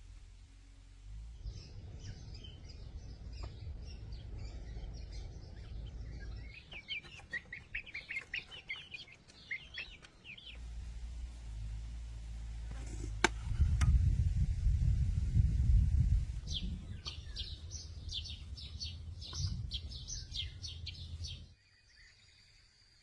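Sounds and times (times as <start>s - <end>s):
small birds chirping: 1.0s - 13.9s, 14.8s - 23.0s
low rumble: 10.5s - 21.5s.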